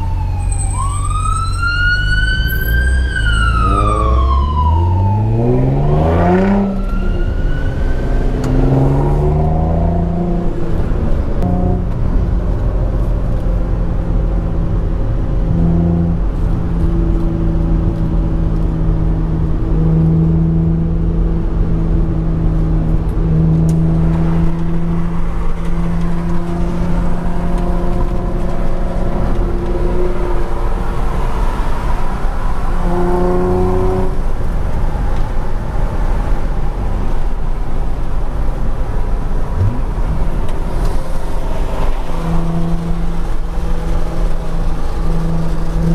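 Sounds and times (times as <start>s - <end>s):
car engine droning: 0.0s - 45.9s
low road rumble: 0.0s - 45.9s.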